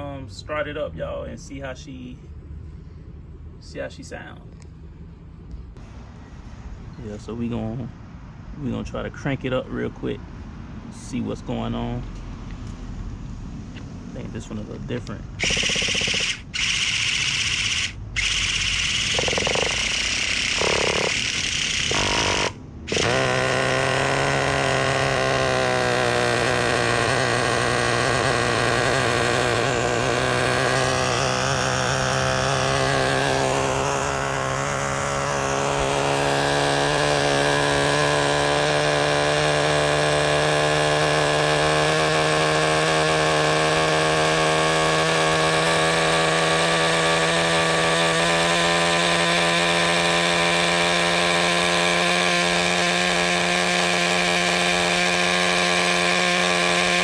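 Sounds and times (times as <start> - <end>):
model engine cranking and idling: 15.4 - 57.0.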